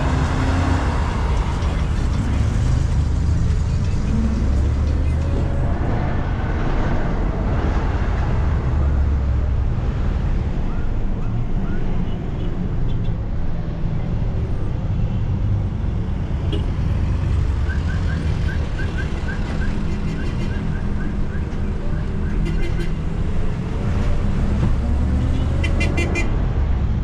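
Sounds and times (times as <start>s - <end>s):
minibus engine running: 0.0s - 9.8s
road and traffic noise: 0.0s - 27.0s.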